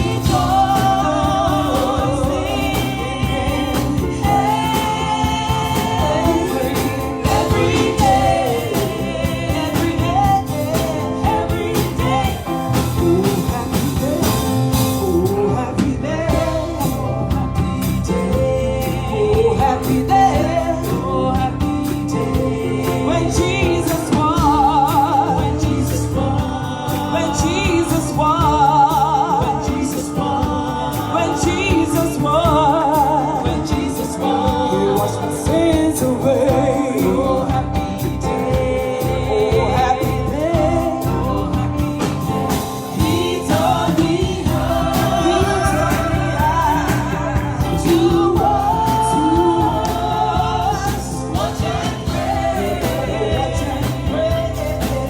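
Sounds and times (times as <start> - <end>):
gospel singing with vibrato: 0.0 - 55.0
regular drum beat: 0.0 - 55.0
steady bass line: 0.0 - 55.0.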